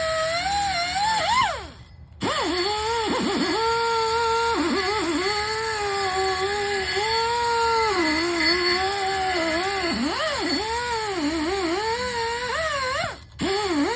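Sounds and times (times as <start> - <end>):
small motor whining: 0.0 - 13.9.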